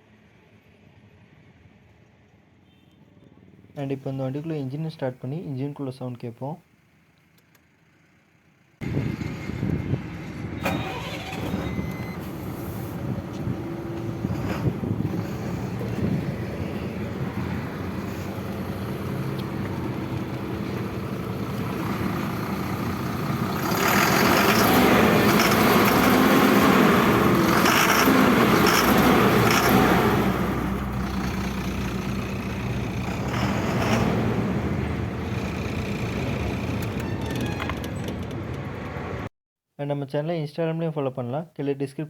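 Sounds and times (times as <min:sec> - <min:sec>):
truck diesel engine idling: 0:10.8 - 0:37.4.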